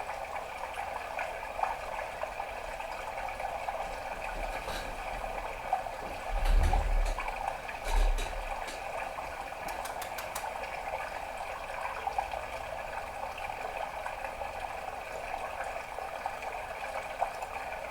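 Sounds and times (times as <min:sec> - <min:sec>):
quick run of clicks: 0:09.6 - 0:10.5.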